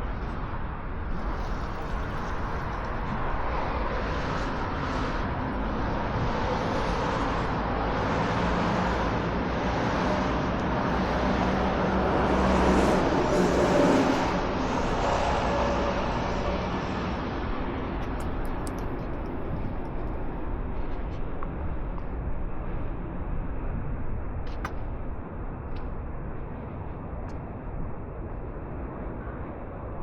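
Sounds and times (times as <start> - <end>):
cars driving past: 3.0 - 19.7
loud vehicle passing: 3.6 - 18.0.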